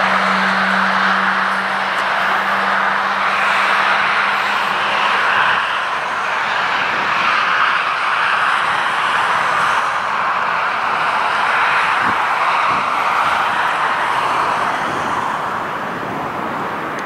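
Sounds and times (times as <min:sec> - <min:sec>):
diesel locomotive hum: 0:00.0 - 0:17.0
train wheels rushing on track: 0:00.0 - 0:17.0.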